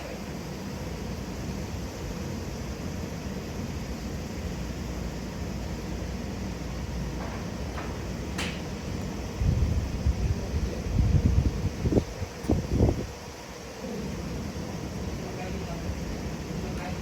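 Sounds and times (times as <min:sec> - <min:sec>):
wind rumble on microphone: 0:09.3 - 0:13.2.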